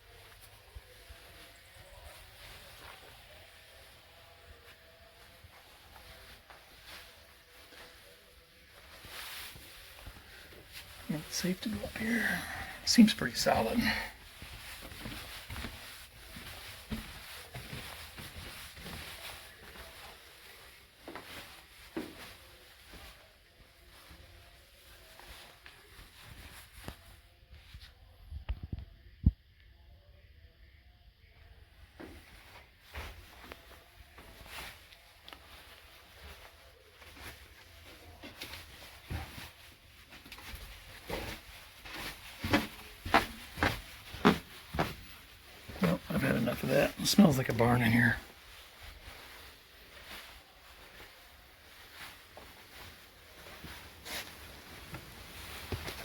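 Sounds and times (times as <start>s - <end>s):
footsteps in a room: 0.0s - 29.5s, 31.6s - 56.0s
footsteps on stairs: 13.8s - 20.1s, 40.1s - 46.1s.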